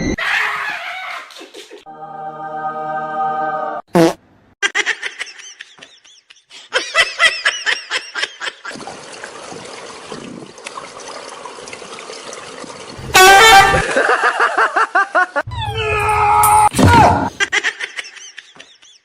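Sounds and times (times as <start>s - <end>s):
person laughing: 4.6s - 8.8s, 17.2s - 19.0s.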